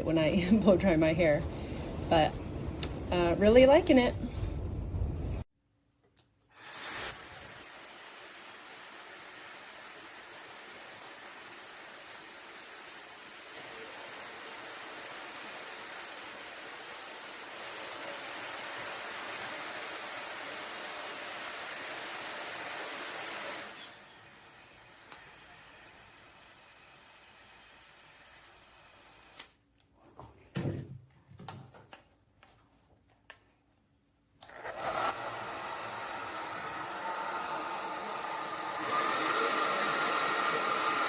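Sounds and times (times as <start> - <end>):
hair dryer running: 6.6 - 29.5, 34.4 - 41.0.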